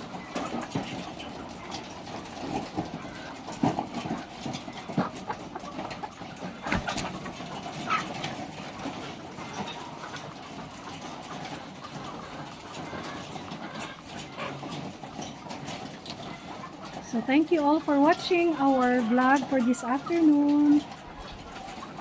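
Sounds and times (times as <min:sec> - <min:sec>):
hens squawking and calling: 0:00.0 - 0:22.0.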